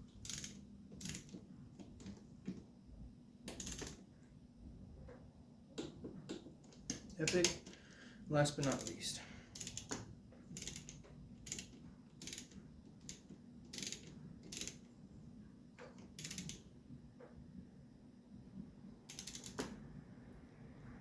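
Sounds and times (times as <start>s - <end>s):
socket ratchet clicking: 0.2s - 2.2s, 3.5s - 4.0s, 6.3s - 7.8s, 8.6s - 14.9s, 15.8s - 16.7s, 19.1s - 19.8s.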